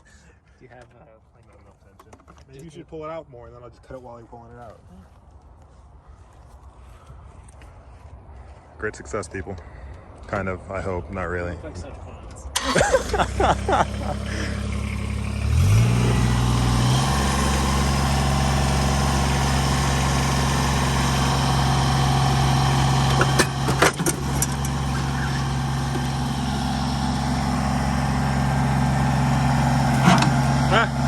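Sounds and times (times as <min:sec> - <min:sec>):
tractor engine running: 0:12.6 - 0:31.0.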